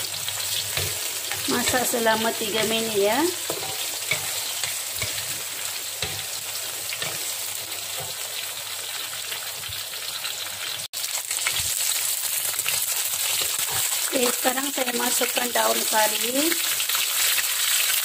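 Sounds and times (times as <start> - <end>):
food sizzling in hot oil: 0.0 - 18.0.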